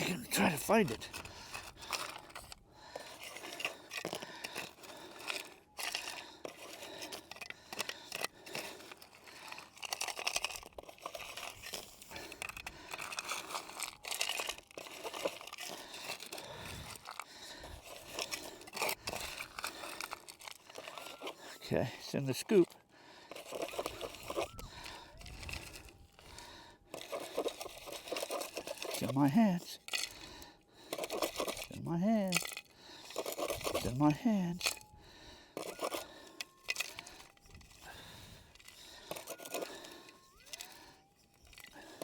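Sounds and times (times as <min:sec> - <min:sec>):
scoop digging through gravelly dirt: 0:00.0 - 0:30.2.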